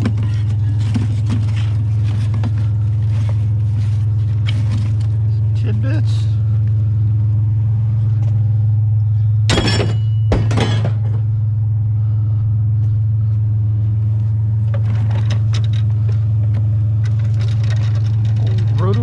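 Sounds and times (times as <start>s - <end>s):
truck engine droning: 0.0s - 19.0s
clattering crashes: 9.5s - 11.3s.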